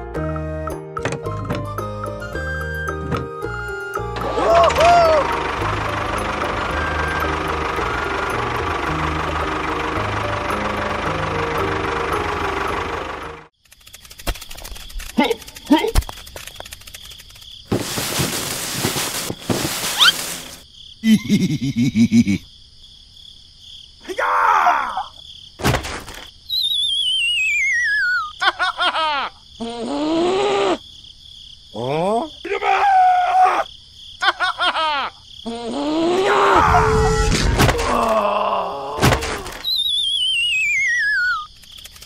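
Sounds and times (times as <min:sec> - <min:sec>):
cartoon hiss with rising squeak: 0:19.9 - 0:20.3, 0:39.6 - 0:41.5.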